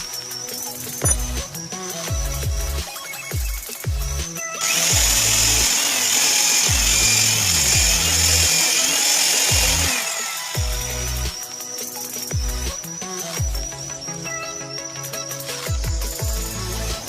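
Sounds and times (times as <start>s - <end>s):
bass-heavy electronic music: 0.0s - 8.7s, 9.4s - 17.0s
power tool running on wood: 4.6s - 12.7s.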